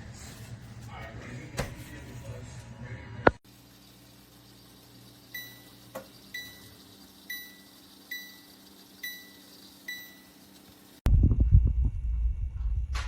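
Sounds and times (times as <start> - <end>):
steady low hum: 0.0 - 13.0
appliance control panel beeps: 5.3 - 10.4
loud low rumble: 11.1 - 13.0.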